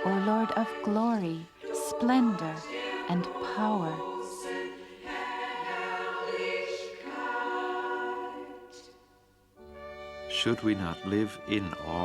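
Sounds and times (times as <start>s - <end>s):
choir singing held chords: 0.0s - 12.0s.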